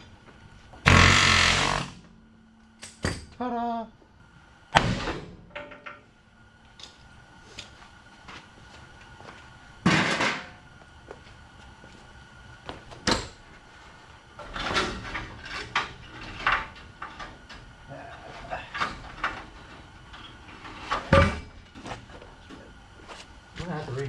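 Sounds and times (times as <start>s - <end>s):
knocks and clanks of tools: 4.8s - 6.1s, 20.8s - 21.6s.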